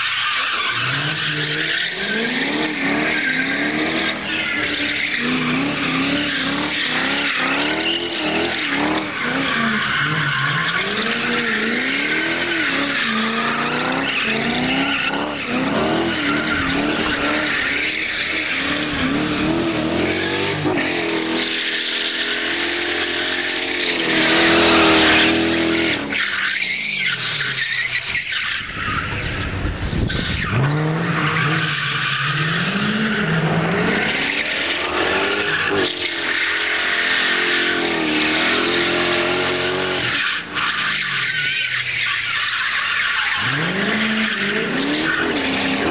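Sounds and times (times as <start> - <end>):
car engine revving: 0.0 - 45.9
tyres squealing: 19.9 - 29.0.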